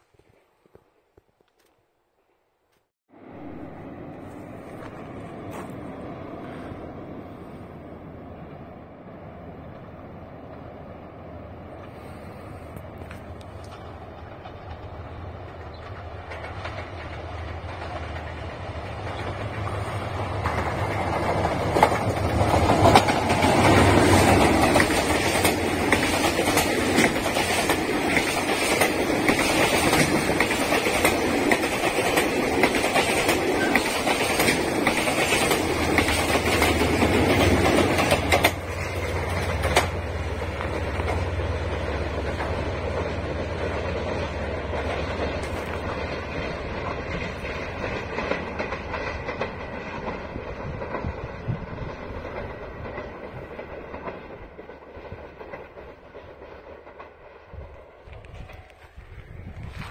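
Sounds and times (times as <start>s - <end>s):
diesel locomotive drone: 3.1s - 59.9s
wheels clattering over rail joints: 13.0s - 59.0s.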